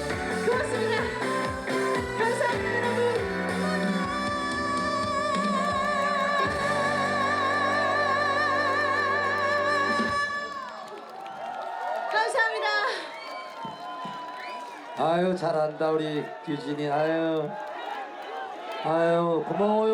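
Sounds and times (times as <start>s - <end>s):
backing accompaniment chords: 0.0s - 10.4s
woman singing with vibrato: 0.0s - 10.9s.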